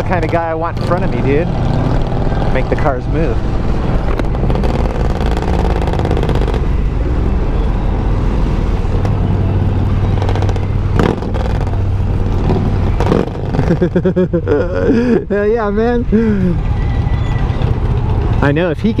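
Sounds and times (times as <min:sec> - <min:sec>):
motorcycle engine running: 0:00.0 - 0:08.0, 0:08.8 - 0:14.2.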